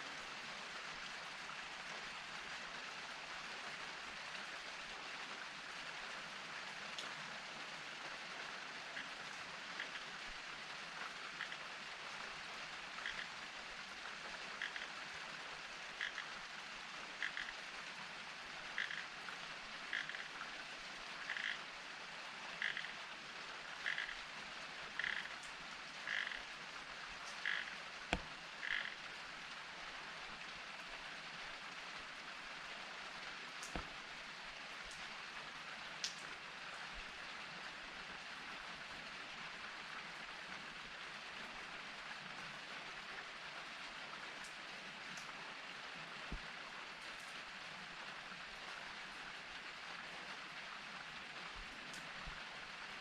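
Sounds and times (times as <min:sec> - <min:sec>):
steady rain falling: 0:00.0 - 0:53.0
sharp drip-like clicks: 0:06.7 - 0:17.9, 0:18.6 - 0:29.6, 0:33.3 - 0:35.2, 0:36.0 - 0:37.2, 0:44.4 - 0:45.4, 0:46.3 - 0:47.5, 0:51.5 - 0:52.4.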